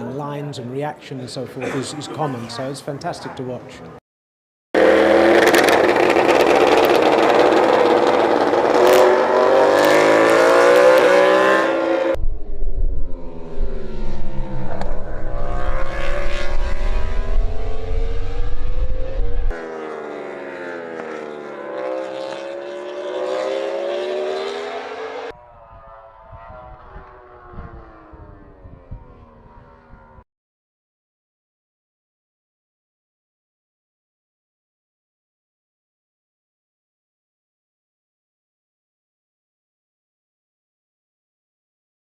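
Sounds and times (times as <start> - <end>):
racing engine revving: 4.8 - 12.2, 13.0 - 30.2.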